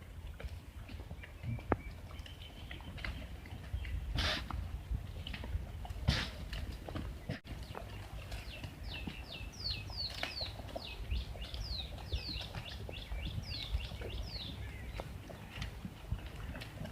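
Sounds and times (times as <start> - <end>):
bird calling: 7.3 - 15.6.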